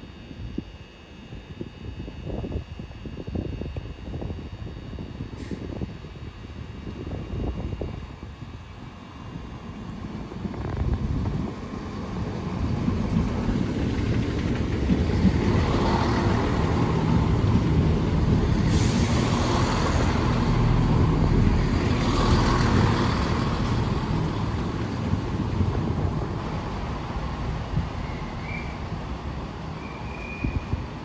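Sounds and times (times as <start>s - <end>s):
train rumbling: 9.2s - 31.0s.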